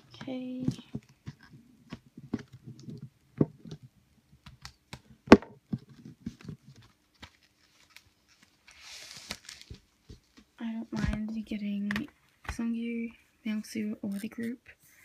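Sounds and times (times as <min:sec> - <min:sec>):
paper or plastic rustle: 0:05.9 - 0:09.8.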